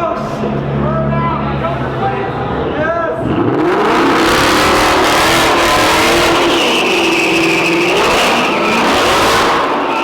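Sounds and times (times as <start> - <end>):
car engine revving hard: 3.2 - 10.0.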